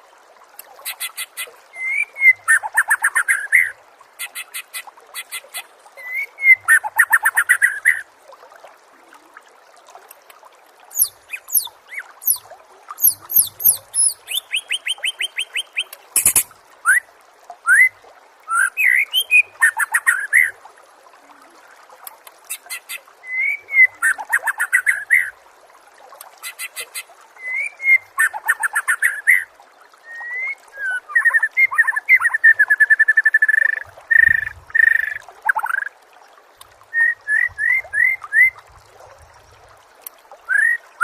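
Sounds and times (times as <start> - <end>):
songbird singing: 10.9 - 12.4, 13.0 - 17.0
sharp click: 16.2 - 16.5.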